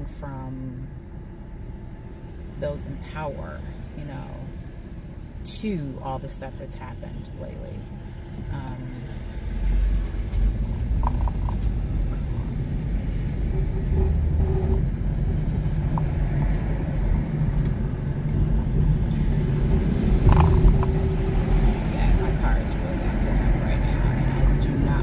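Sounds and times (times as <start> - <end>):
car engine droning in cabin: 0.0 - 25.0.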